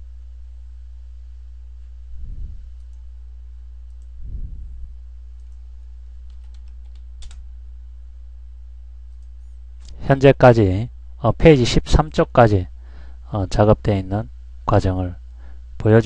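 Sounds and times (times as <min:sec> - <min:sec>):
low electrical hum: 0:00.0 - 0:16.0
faint clicks: 0:03.8 - 0:04.1, 0:05.4 - 0:05.6.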